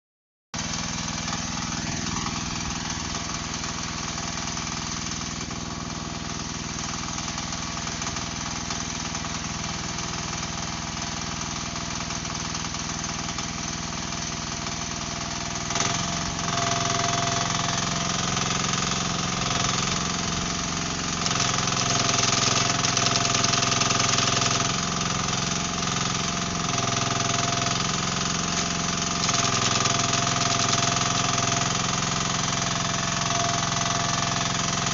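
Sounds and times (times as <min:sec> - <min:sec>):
excavator engine running: 0:00.6 - 0:34.9
hydraulic breaker hammering: 0:12.2 - 0:34.9.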